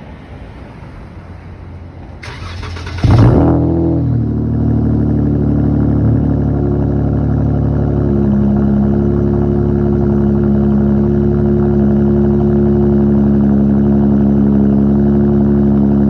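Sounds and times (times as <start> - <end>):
car engine starting and idling: 2.1 - 14.2
starter motor cranking: 2.2 - 3.4.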